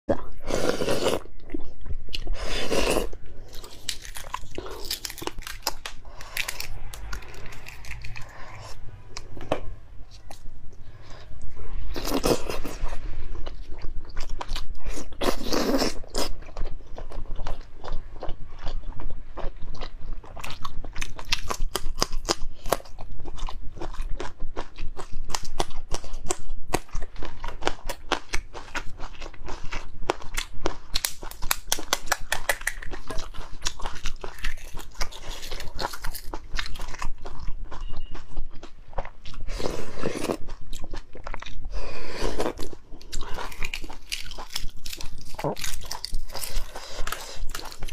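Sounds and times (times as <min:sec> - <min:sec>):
crunching bites: 0:03.5 - 0:09.3, 0:42.6 - 0:47.9
chewing: 0:13.4 - 0:47.9.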